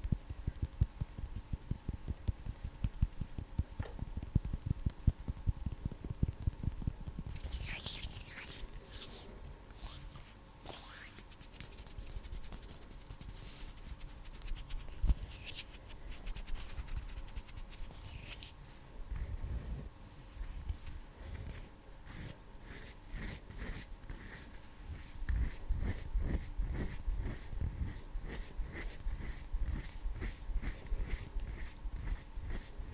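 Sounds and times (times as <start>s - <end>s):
hands rubbing together: 9.8s - 18.6s.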